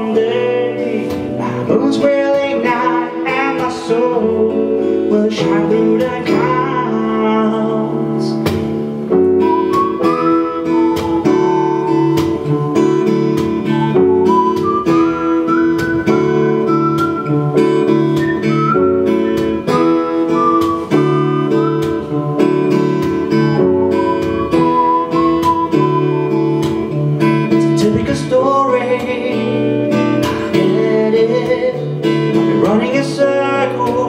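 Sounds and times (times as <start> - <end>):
acoustic guitar strumming chords: 0.0 - 34.0
sliding lead guitar melody: 0.0 - 34.0.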